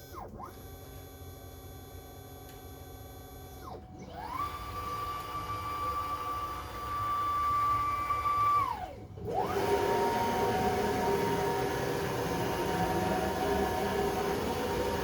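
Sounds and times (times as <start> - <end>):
router motors whining: 3.3 - 15.0.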